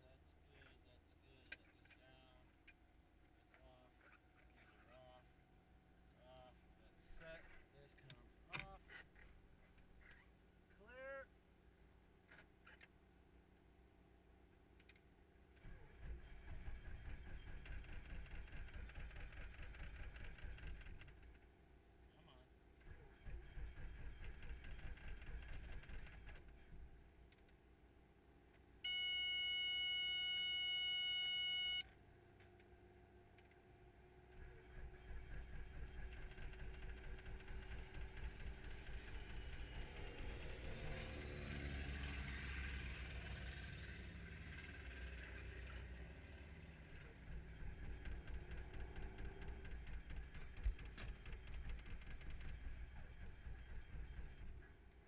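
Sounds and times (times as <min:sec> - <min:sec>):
engine rumbling: 0:14.8 - 0:21.5, 0:22.7 - 0:27.7, 0:31.0 - 0:55.0
quick irregular ticking: 0:16.1 - 0:21.4, 0:23.0 - 0:26.6, 0:34.8 - 0:40.8, 0:47.2 - 0:54.7
steady electronic beep: 0:28.9 - 0:31.8.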